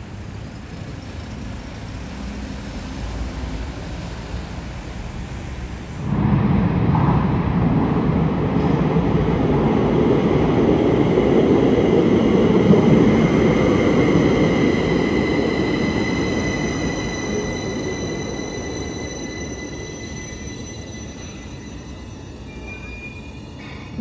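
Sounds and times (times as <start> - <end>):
train wheels rumbling on rail: 0.0 - 24.0
high multi-tone whine: 11.0 - 24.0.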